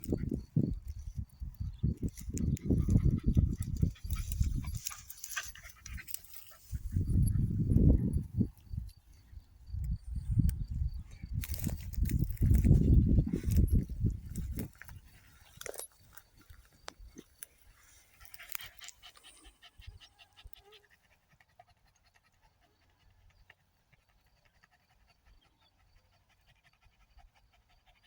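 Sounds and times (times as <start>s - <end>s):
rustling: 3.7s - 6.9s.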